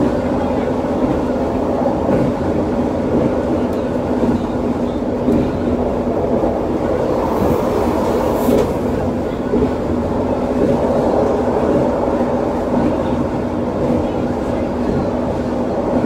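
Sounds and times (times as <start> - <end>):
train running rumble: 0.0 - 16.0
passing train hiss: 5.6 - 12.6.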